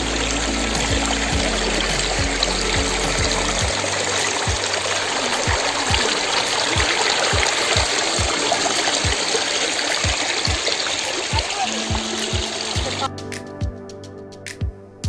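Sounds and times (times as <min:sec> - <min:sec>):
waterfall rushing: 0:00.0 - 0:13.1
kick drum beat in music: 0:00.8 - 0:04.8, 0:05.5 - 0:06.2, 0:06.8 - 0:08.4, 0:10.0 - 0:10.7, 0:11.3 - 0:13.9, 0:14.5 - 0:14.8.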